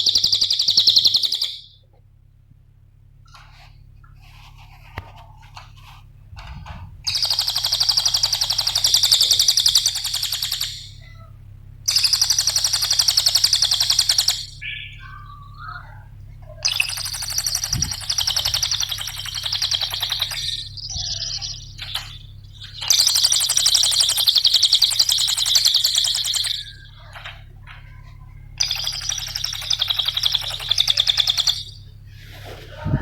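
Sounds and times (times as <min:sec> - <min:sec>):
songbird trilling: 0:00.0 - 0:01.8, 0:07.1 - 0:11.2, 0:11.9 - 0:31.9
steady low hum: 0:00.0 - 0:33.0.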